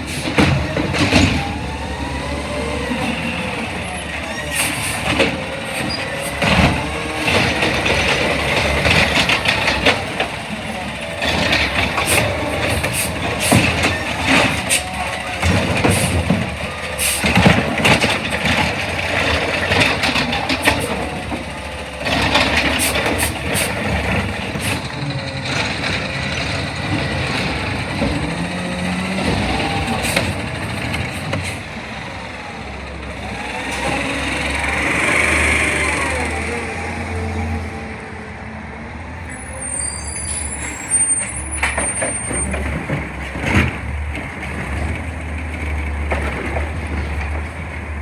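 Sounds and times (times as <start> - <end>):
diesel engine running: 0.0 - 38.1
air brakes hissing: 4.1 - 6.5, 11.5 - 17.7, 20.3 - 26.8
metal clanks and bangs: 4.6 - 31.7.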